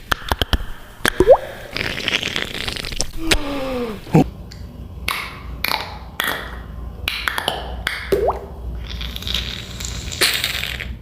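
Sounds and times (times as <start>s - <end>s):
beatboxing mouth sounds: 0.0s - 4.3s, 8.8s - 11.0s.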